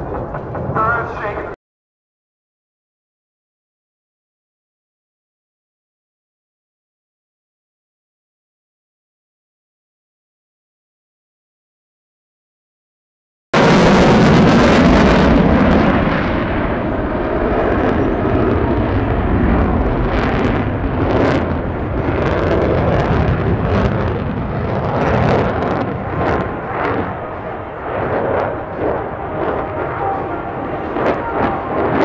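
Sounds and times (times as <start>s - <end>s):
jet engine rumbling with crackle: 0.0s - 1.6s, 13.6s - 32.0s.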